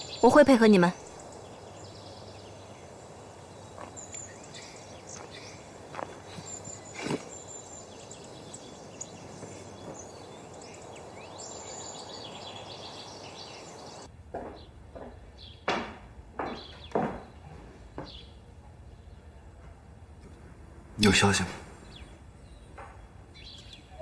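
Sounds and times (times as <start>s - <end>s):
small birds chirping: 0.0s - 15.7s, 16.4s - 19.6s, 21.0s - 24.0s
steady outdoor hiss: 0.0s - 24.0s
sharp knocks: 14.3s - 17.3s.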